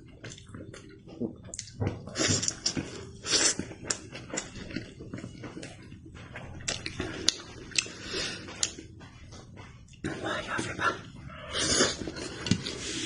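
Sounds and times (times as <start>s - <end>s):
chewing with wet smacking: 0.0s - 10.1s.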